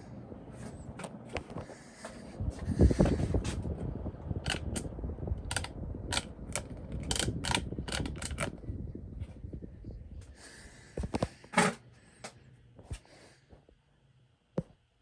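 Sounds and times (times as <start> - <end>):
mechanical clicking and rattling: 4.4 - 8.6.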